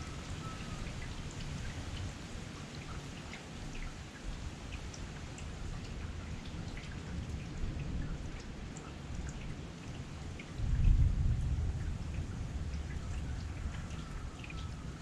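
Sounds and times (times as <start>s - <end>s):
heavy rain falling: 0.0s - 2.6s.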